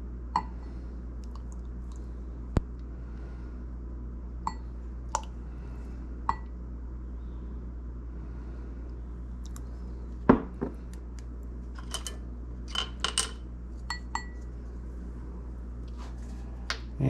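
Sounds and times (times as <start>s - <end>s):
metal and glass clinks: 11.8s - 13.4s.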